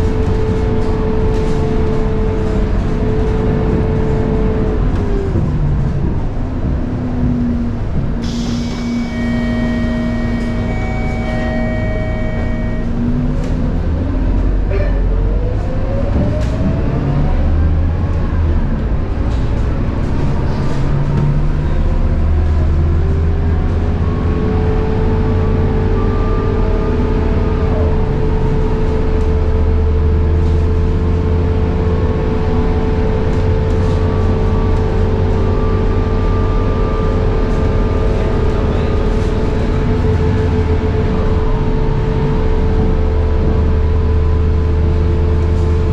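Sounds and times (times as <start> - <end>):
bus engine drone: 0.0 - 45.9
gearbox whine: 8.5 - 13.4.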